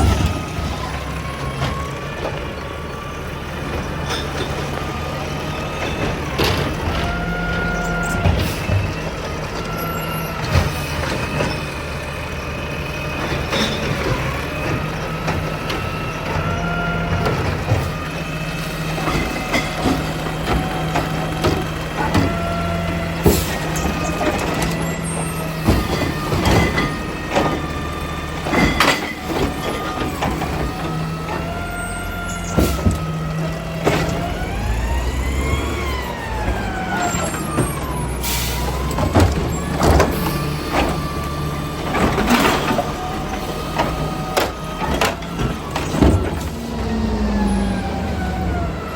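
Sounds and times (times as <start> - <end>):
diesel truck engine: 0.0 - 48.9
metal clanks and bangs: 18.9 - 31.6.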